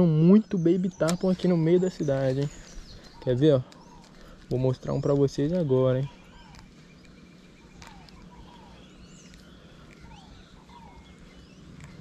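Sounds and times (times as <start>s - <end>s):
birds chirping and calling: 0.0s - 12.0s
low outdoor background: 0.0s - 12.0s
soft clicks: 9.2s - 12.0s.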